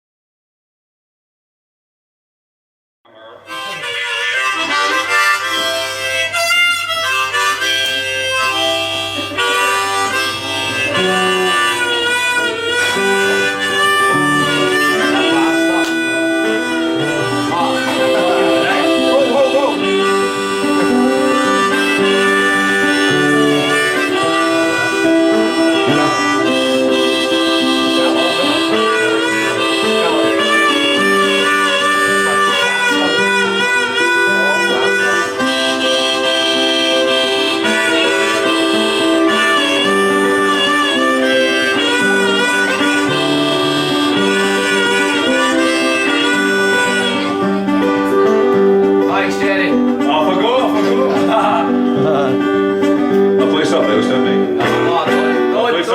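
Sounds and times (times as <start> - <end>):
harmonica melody: 3.1 - 55.9
strummed acoustic guitar: 44.0 - 55.9.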